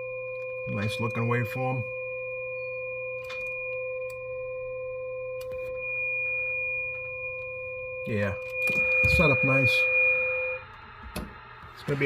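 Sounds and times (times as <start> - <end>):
electronic test tones: 0.6 - 12.0.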